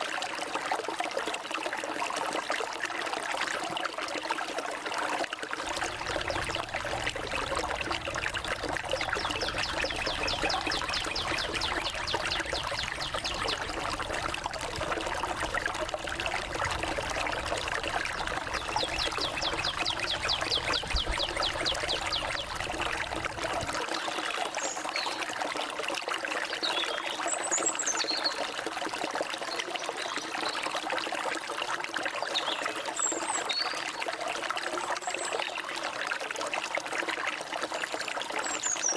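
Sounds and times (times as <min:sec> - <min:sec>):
stream trickling: 0:00.0 - 0:38.9
bird chirps: 0:08.8 - 0:14.1, 0:18.5 - 0:22.6.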